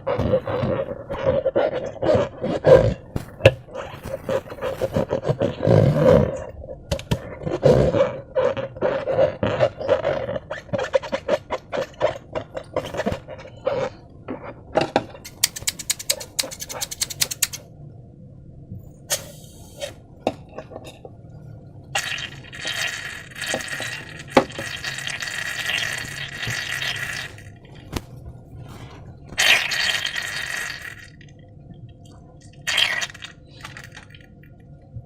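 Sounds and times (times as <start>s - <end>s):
slime squelching: 0.0s - 6.5s, 22.0s - 31.4s, 32.5s - 34.6s
sharp clicks: 15.3s - 17.6s.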